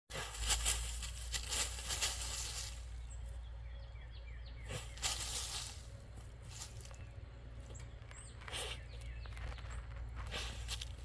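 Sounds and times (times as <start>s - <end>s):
dog scratching in soft dirt: 0.1s - 3.0s, 4.7s - 6.9s.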